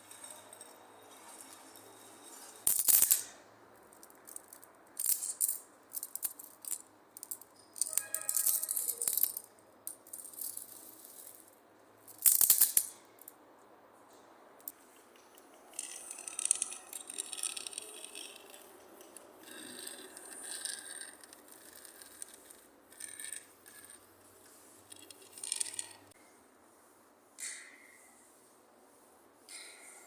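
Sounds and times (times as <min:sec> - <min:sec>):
hard materials rattling and scraping: 0:14.7 - 0:26.2.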